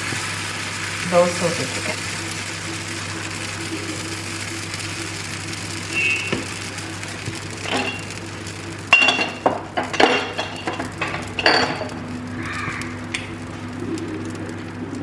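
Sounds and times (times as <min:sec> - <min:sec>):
steady low hum: 0:00.0 - 0:15.0
metal utensils clinking on pots: 0:08.9 - 0:15.0.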